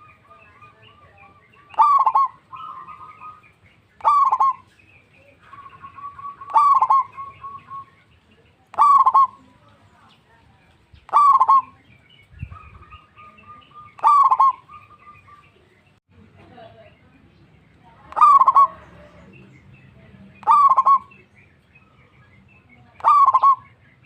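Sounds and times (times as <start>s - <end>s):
dove cooing: 0.0s - 8.0s, 8.7s - 9.6s, 11.1s - 15.4s, 18.1s - 19.2s, 20.4s - 21.2s, 23.0s - 23.7s.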